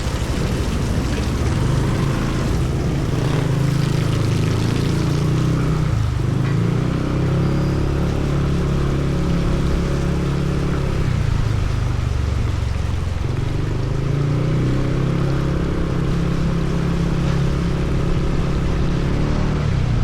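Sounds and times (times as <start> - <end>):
heavy rain hiss: 0.0 - 20.0
motorcycle engine running: 0.0 - 20.0.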